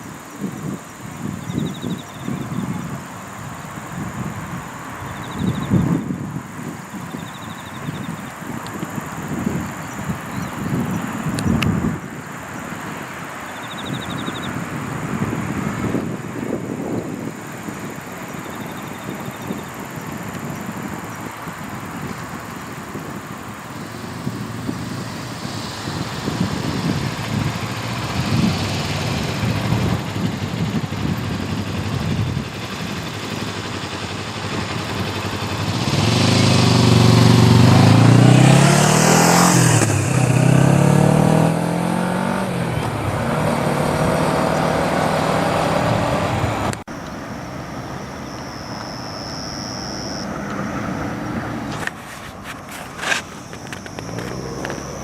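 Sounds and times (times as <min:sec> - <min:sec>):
road traffic: 0:00.0 - 0:55.0
vehicle engine passing close: 0:23.0 - 0:55.0.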